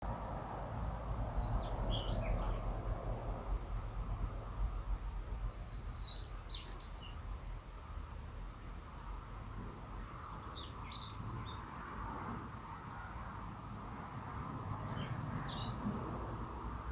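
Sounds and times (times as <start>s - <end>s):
low background rumble: 0.0s - 10.6s
bird singing high varied notes: 1.4s - 2.6s, 5.5s - 7.2s.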